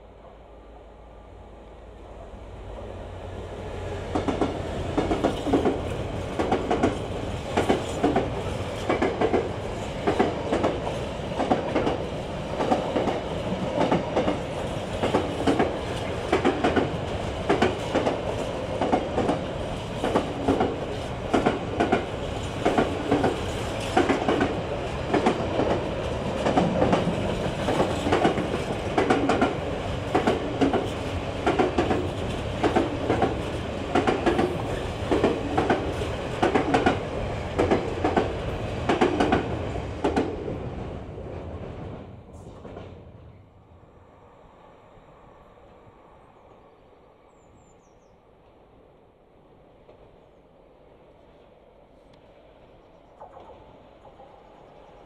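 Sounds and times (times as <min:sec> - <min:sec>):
diesel locomotive passing: 0:00.0 - 0:47.6
train wagons rumbling: 0:03.4 - 0:43.4
wheels clacking on rail joints: 0:04.1 - 0:13.2, 0:13.8 - 0:40.4.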